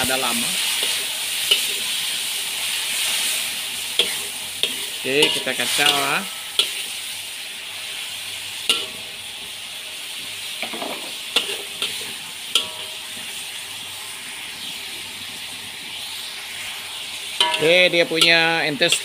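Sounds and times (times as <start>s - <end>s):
meat sizzling in a wok: 0.0s - 19.0s
metal spatula clinking on wok: 4.0s - 6.8s, 8.7s - 9.0s, 11.4s - 13.0s, 17.4s - 19.0s.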